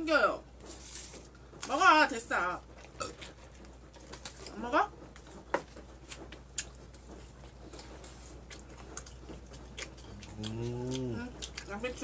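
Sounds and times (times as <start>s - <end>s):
people chewing: 2.6s - 12.0s
low hum of a voice: 10.0s - 12.0s.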